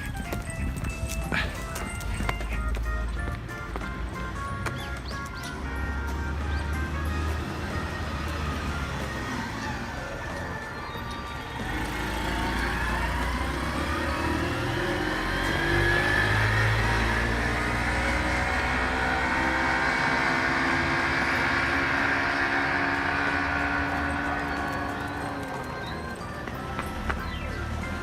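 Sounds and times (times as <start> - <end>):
vehicle passing by: 5.6 - 28.0.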